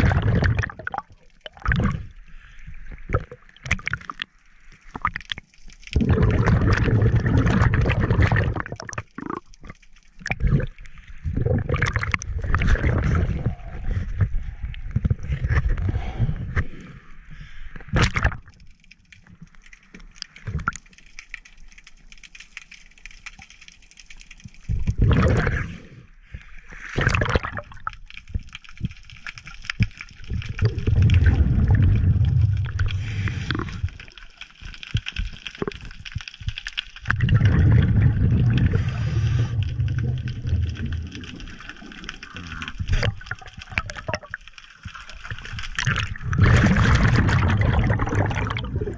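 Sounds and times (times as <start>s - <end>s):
low underwater bubbling rumbles: 0.0s - 2.2s, 4.9s - 16.2s, 24.7s - 25.7s, 27.0s - 28.9s, 30.2s - 34.2s, 37.0s - 48.9s
water splashing and gurgling: 0.0s - 48.9s.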